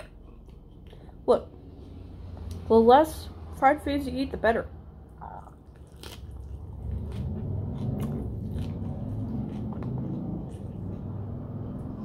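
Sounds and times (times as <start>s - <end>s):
person chewing: 5.1s - 11.2s.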